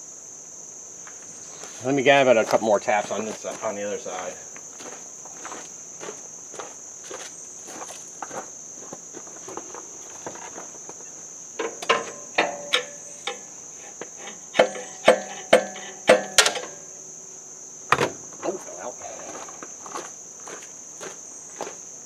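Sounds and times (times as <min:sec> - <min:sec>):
high insect drone: 0:00.0 - 0:22.0
hammer knocking on metal: 0:14.3 - 0:16.7.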